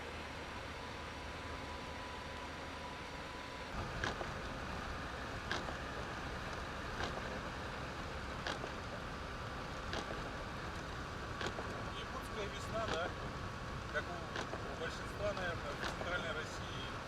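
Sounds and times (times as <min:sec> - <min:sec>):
car cabin rumbling hiss: 0:03.8 - 0:17.0.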